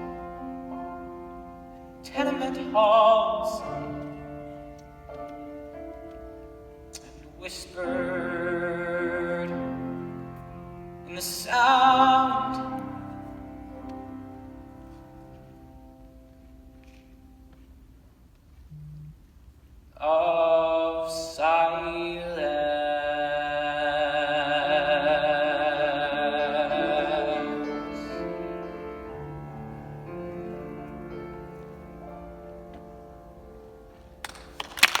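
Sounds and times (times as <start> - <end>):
instrumental accompaniment: 0.0 - 19.6
applause: 34.2 - 35.0.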